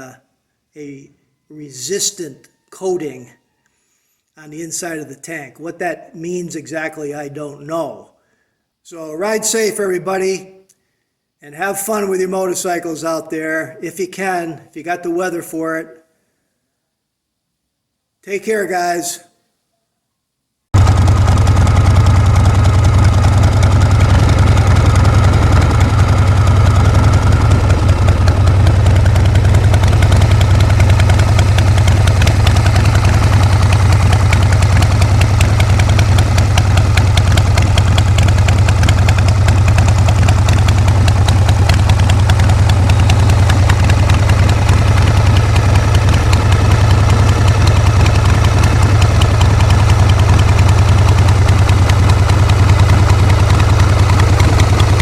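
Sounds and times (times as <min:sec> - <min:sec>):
motorcycle engine idling: 0:20.8 - 0:55.0.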